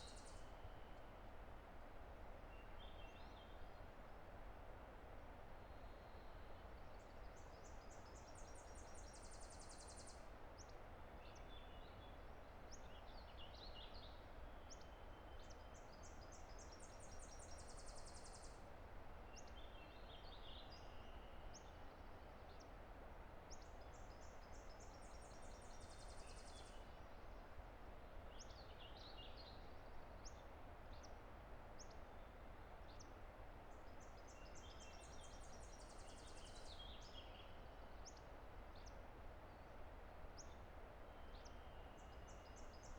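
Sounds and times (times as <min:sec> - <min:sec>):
songbird song with high trill: 0:40.4 - 0:42.9.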